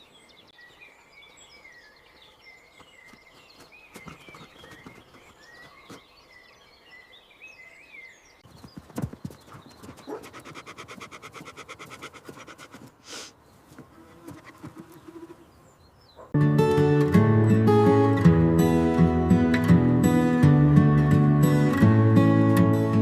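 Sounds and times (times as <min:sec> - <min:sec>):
faint birdsong chirping: 0:00.0 - 0:16.4
horse snort: 0:10.0 - 0:13.3.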